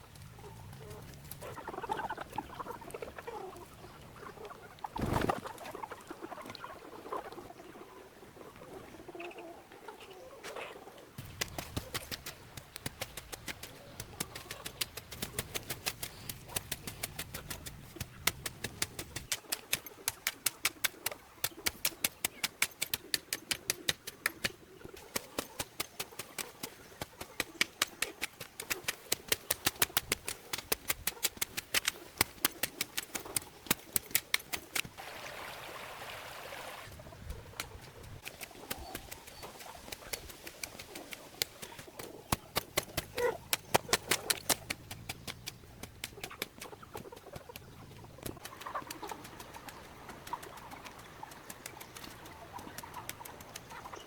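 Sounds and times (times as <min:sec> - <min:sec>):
rapid irregular clicking: 0:11.2 - 0:35.0, 0:37.5 - 0:54.0.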